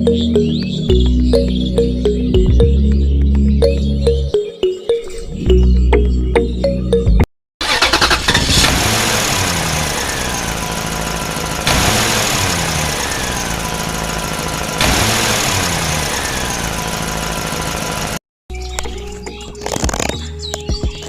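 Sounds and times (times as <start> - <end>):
engine burst with falling pitch: 7.6 - 18.2.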